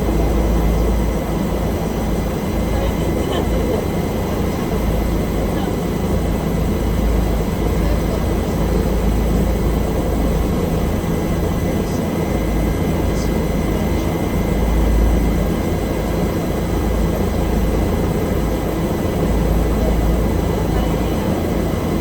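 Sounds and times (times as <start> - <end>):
helicopter turbine and rotor drone: 0.0 - 22.0
thin steady whine: 0.0 - 22.0.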